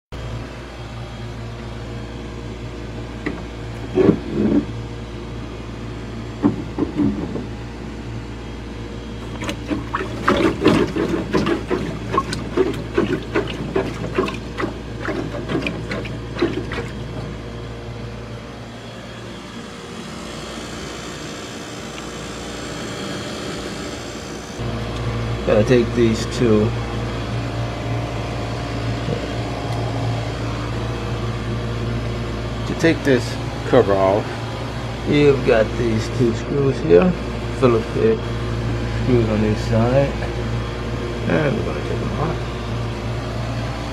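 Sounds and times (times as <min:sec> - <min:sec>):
low mechanical hum: 0:00.1 - 0:43.9
knocks and clatter: 0:06.4 - 0:07.5.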